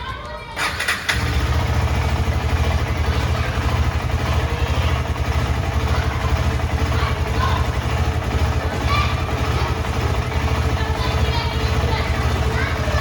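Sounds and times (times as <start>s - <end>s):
motorcycle engine idling: 0.6s - 13.0s.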